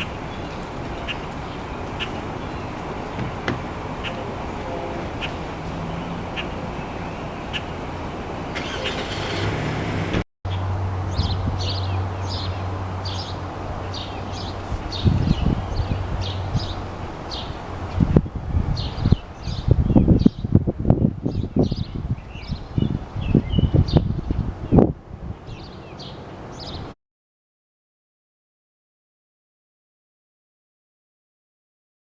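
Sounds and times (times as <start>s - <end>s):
small birds chirping: 0.0s - 9.1s, 10.5s - 18.2s, 18.8s - 20.6s, 21.2s - 27.0s
outdoor background noise: 0.0s - 27.0s
low knocks: 3.1s - 3.8s.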